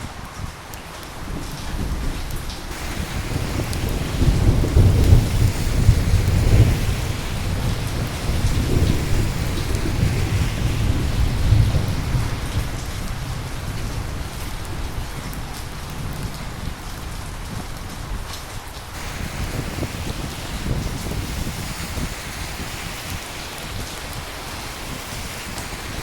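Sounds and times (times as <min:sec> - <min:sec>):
steady rain: 0:00.0 - 0:26.0
thunder rumbling: 0:01.2 - 0:18.3, 0:18.9 - 0:26.0.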